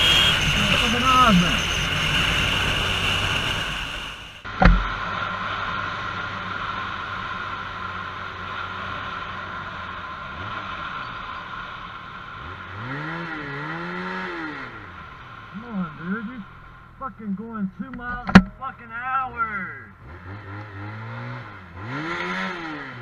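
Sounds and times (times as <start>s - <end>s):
motorcycle engine and road hum: 0.0s - 23.0s
sharp knock: 4.6s - 4.9s.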